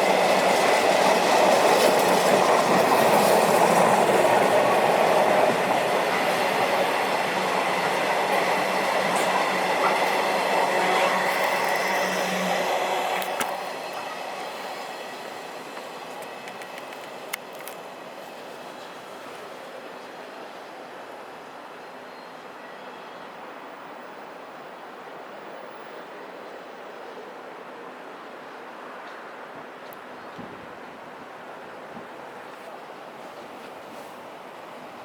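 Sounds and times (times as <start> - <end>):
train passing with steady hum: 0.0 - 35.0.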